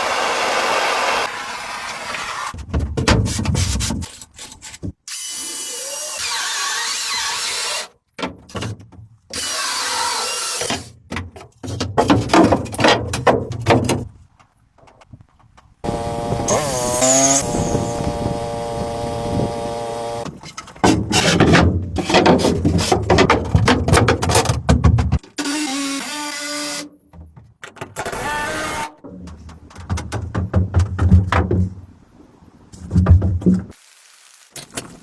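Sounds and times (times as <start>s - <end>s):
power tools working wood: 0.0s - 2.5s, 15.8s - 20.3s.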